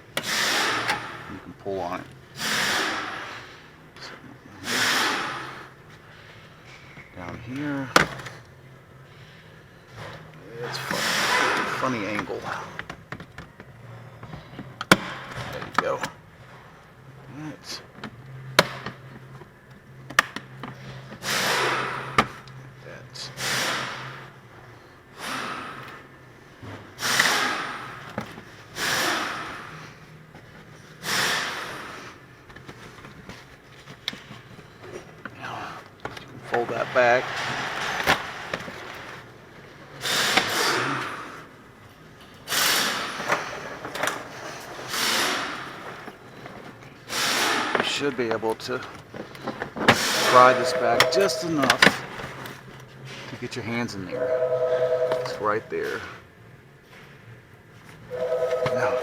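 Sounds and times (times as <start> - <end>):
person breathing heavily: 25.1 - 26.1
plastic cover rubbing and scraping: 36.4 - 39.3.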